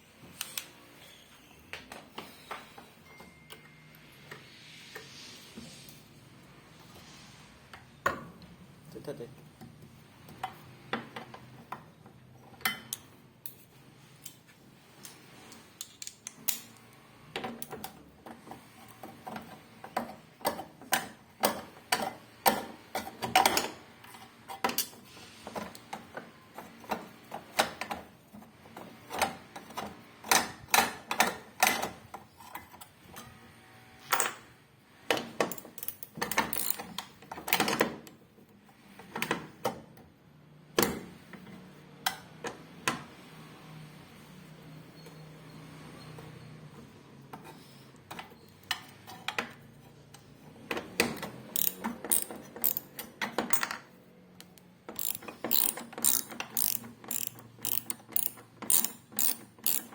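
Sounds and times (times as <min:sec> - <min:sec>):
hand tools and metal parts clattering: 0:11.2 - 0:33.4, 0:35.1 - 0:38.0, 0:47.3 - 0:54.0, 0:54.8 - 0:59.9.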